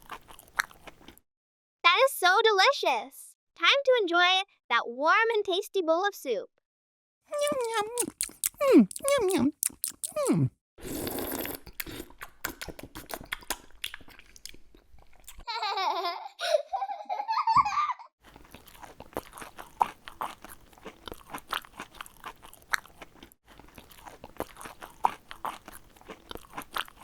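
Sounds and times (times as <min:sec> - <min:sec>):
crunchy chewing: 0:00.0 - 0:01.2, 0:07.4 - 0:15.4, 0:18.2 - 0:27.0
squeaky voice-like sound: 0:07.3 - 0:10.5.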